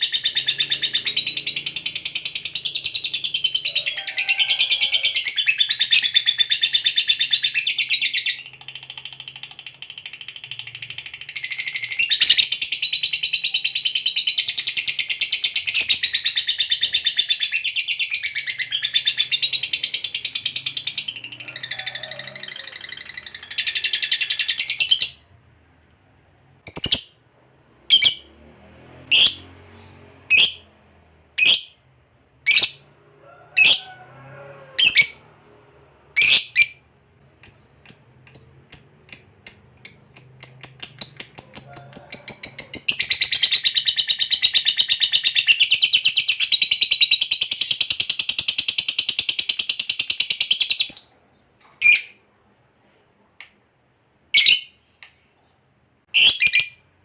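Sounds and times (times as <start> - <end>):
lovebird chattering and trilling: 26.7 - 27.2, 27.9 - 28.3, 36.2 - 51.0, 54.4 - 54.8.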